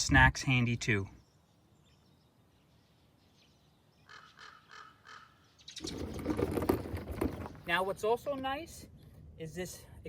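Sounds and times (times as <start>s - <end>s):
crow cawing: 4.0s - 5.4s.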